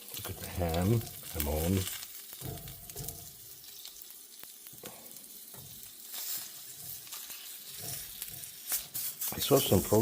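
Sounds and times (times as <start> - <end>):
ham sizzling in a frying pan: 0.0 - 10.0.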